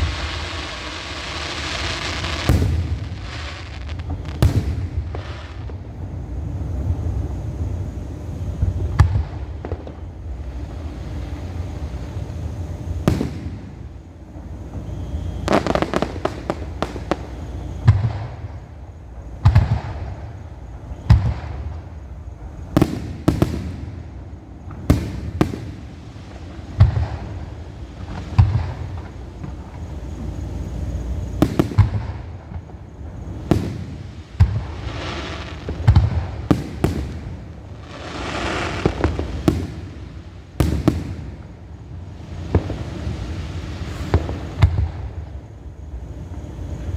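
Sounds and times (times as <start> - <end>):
firework shells bursting: 0.0 - 5.9, 12.8 - 18.6, 21.0 - 45.1
rapid crackling firework bursts: 0.0 - 7.8, 8.4 - 45.3.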